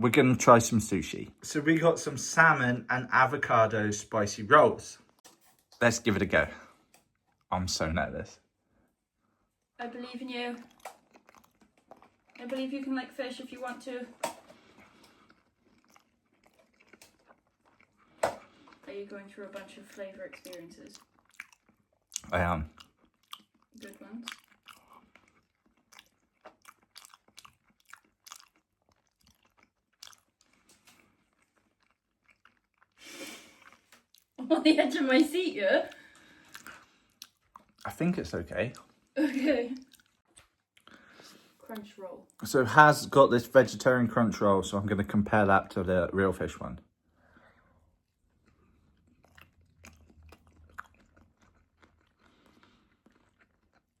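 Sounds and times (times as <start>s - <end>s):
person chewing food: 6.6s - 7.5s, 10.6s - 12.8s, 14.2s - 18.9s, 19.8s - 34.4s, 35.9s - 39.2s, 39.8s - 42.4s, 47.2s - 54.0s.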